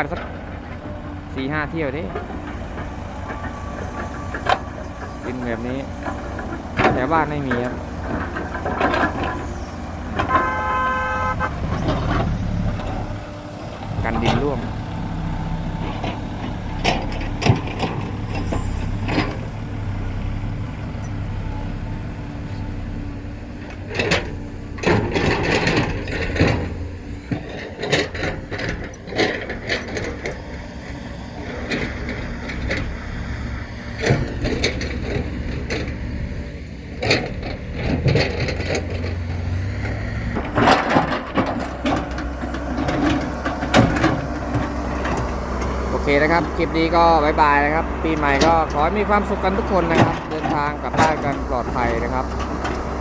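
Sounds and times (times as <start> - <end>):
diesel engine running: 0.0 - 53.0
sharp knocks and clunks: 0.1 - 19.5, 23.5 - 53.0.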